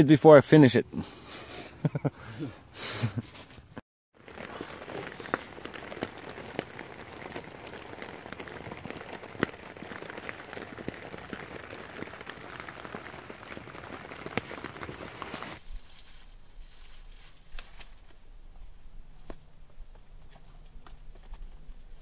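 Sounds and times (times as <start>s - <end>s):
rain pattering on tent fabric: 4.1s - 16.1s.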